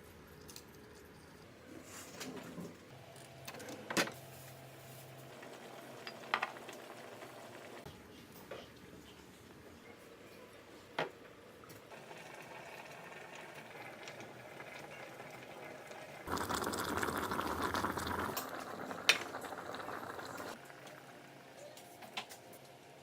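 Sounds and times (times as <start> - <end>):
liquid bubbling in a kettle: 5.0 - 7.9, 11.8 - 21.9.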